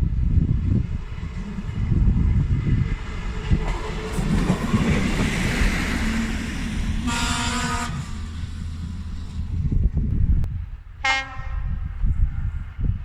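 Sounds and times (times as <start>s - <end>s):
train rumbling: 0.0s - 13.0s
train horn blast: 6.9s - 9.4s, 11.0s - 11.9s.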